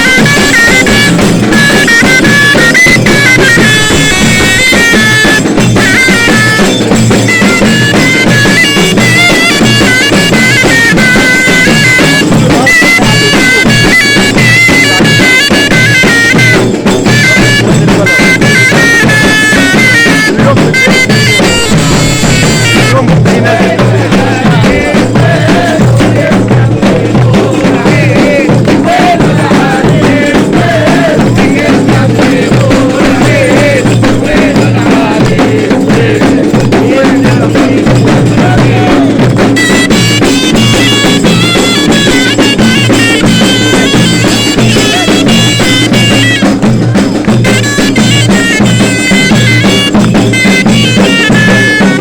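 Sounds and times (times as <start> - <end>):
bagpipes playing melody: 0.0 - 23.3, 39.4 - 52.0
steady drumming: 0.0 - 52.0.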